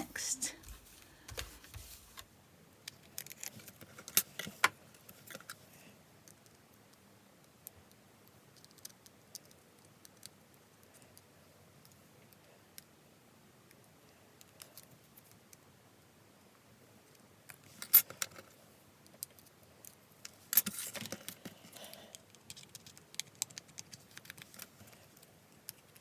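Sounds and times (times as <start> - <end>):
light clicks and rustles: 17.1 - 26.0.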